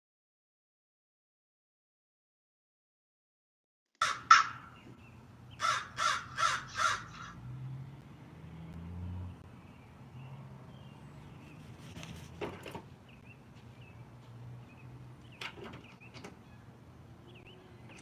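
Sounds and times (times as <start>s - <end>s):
crow cawing: 4.0s - 4.8s, 5.6s - 7.4s.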